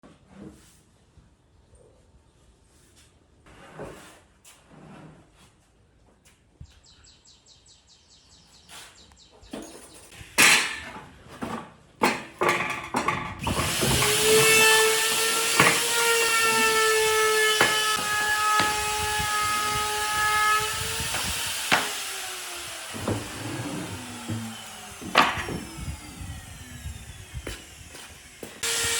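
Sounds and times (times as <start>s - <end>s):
wood knocking: 12.0s - 26.1s
power tool whining: 12.2s - 28.9s.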